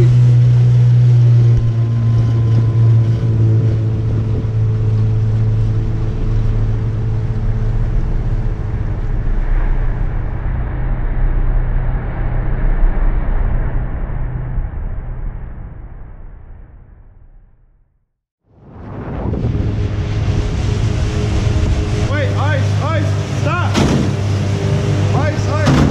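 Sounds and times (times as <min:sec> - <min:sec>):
wind and water rushing: 0:00.0 - 0:10.6, 0:18.5 - 0:25.9
speedboat engine droning: 0:00.0 - 0:15.9, 0:18.6 - 0:25.9.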